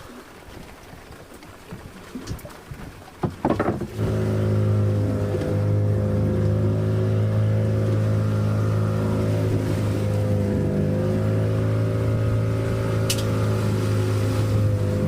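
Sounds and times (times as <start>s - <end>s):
boat engine starting and running: 0.0s - 15.0s
engine knocks: 3.2s - 4.2s.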